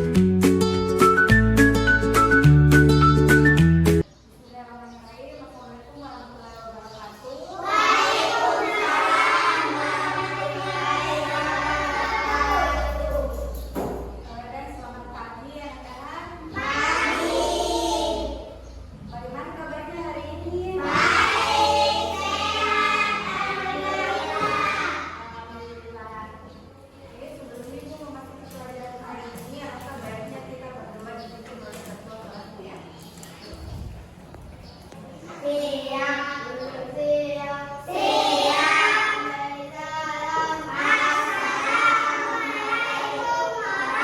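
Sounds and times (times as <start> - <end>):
music with singing voices: 0.0 - 4.0
children singing long held notes: 7.6 - 13.2, 16.6 - 18.4, 20.8 - 25.2, 37.8 - 39.4, 40.2 - 44.0.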